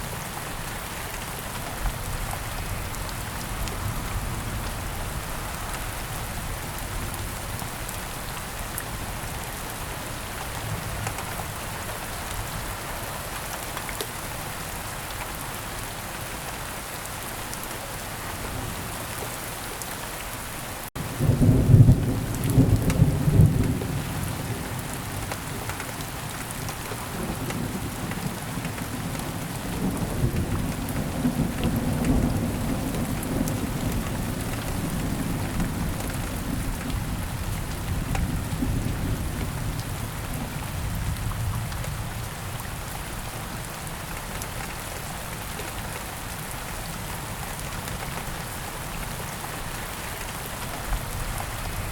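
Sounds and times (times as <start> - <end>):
rain falling: 0.0 - 51.9
thunder rumbling: 21.0 - 24.7.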